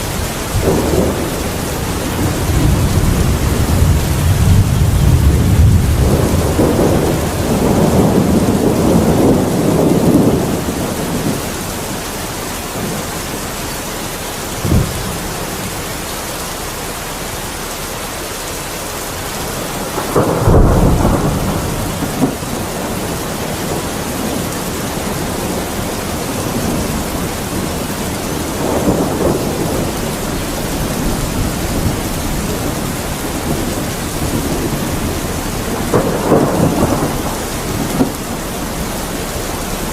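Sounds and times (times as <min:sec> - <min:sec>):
sharp thunder crack: 0:00.0 - 0:11.4, 0:14.6 - 0:15.7, 0:19.6 - 0:39.9
steady rain: 0:00.0 - 0:39.9
thunder rumbling: 0:00.0 - 0:39.9.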